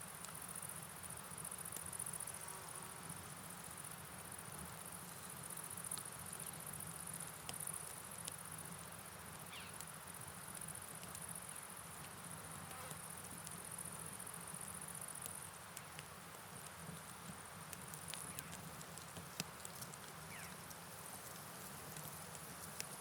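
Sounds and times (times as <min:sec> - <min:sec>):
rain hiss: 0:00.0 - 0:23.0
insects chirring: 0:00.4 - 0:15.6, 0:17.8 - 0:22.9
faint clicks: 0:10.5 - 0:13.6, 0:15.2 - 0:23.0.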